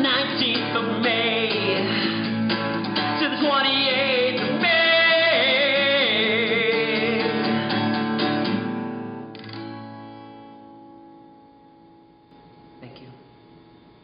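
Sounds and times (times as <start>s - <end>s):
man singing: 0.0s - 2.3s, 3.0s - 7.7s
acoustic guitar strumming: 0.0s - 12.7s.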